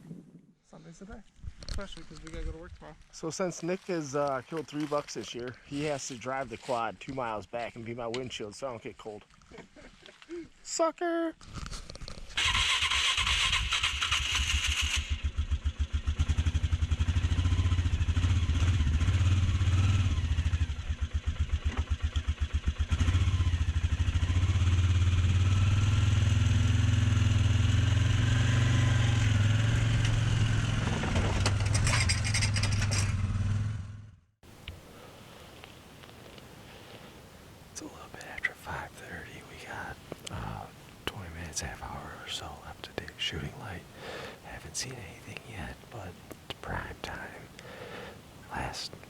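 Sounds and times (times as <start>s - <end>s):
quad engine running: 13.2s - 34.2s.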